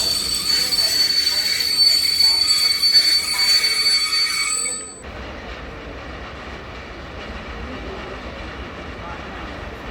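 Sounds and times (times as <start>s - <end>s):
train wheels squealing: 0.0s - 5.0s
low train rumble: 0.0s - 9.9s.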